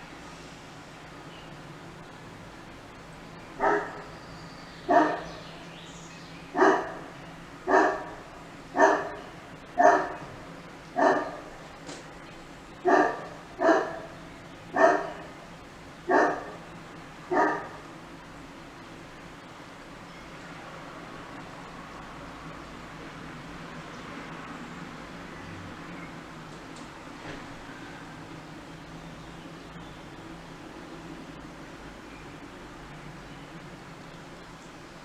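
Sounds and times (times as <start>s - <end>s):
dog barking: 3.6s - 4.1s, 4.9s - 5.4s, 6.6s - 7.1s, 7.7s - 10.3s, 11.0s - 11.5s, 12.8s - 15.4s, 16.1s - 16.6s, 17.3s - 17.8s.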